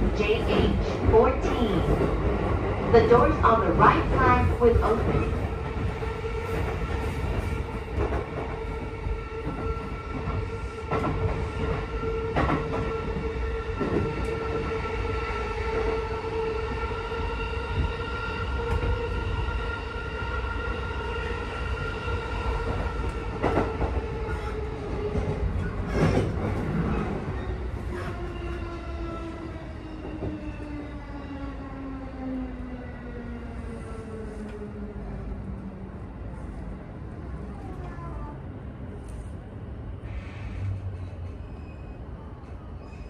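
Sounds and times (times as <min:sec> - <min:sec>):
wheels rumbling on rail: 0:22.1 - 0:31.4, 0:33.1 - 0:43.0.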